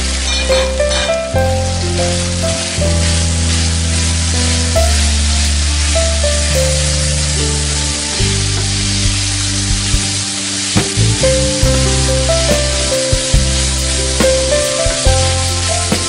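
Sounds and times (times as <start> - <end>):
background music with held notes: 0.0 - 16.0
chicken and onions sizzling: 0.0 - 16.0.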